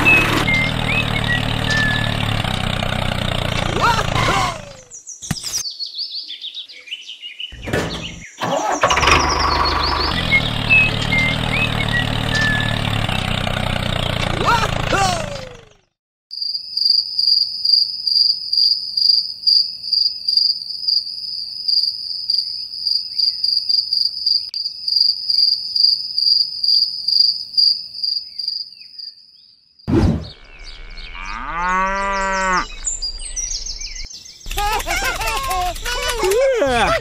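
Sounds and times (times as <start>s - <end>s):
insects chirping: 16.3s - 37.0s
cow mooing: 30.3s - 32.8s.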